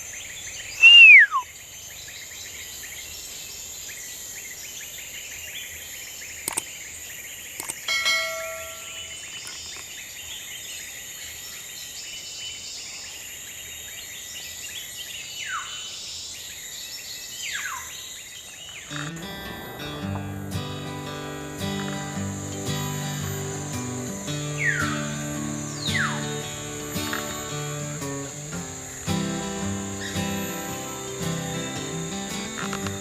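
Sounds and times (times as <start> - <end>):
high insect drone: 0.0 - 33.0
birds falling whistles: 0.8 - 1.5, 22.7 - 28.3
sharp click: 6.4 - 6.7, 7.6 - 7.9
short ringing bird call: 7.9 - 9.3.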